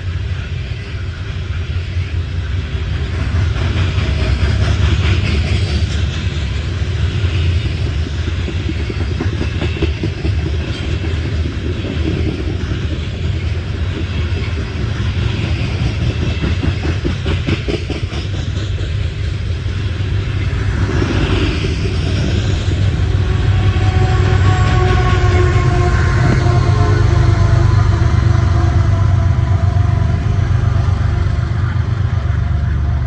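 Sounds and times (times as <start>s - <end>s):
train cars rumbling past: 0.0s - 33.0s
wheels clacking over rail joints: 3.1s - 32.7s.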